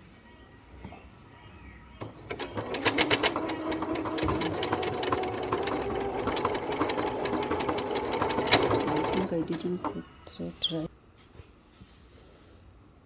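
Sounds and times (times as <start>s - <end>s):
sewing machine running: 2.0s - 10.0s.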